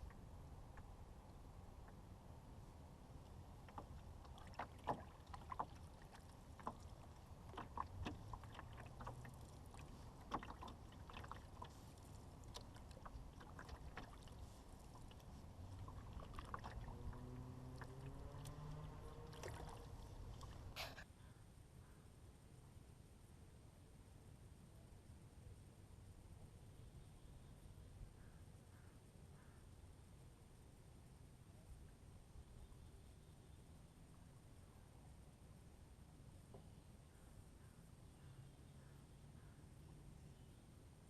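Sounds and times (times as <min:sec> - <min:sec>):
paddle splashes: 0:03.3 - 0:21.0
paddle knocking against hull: 0:03.7 - 0:11.7.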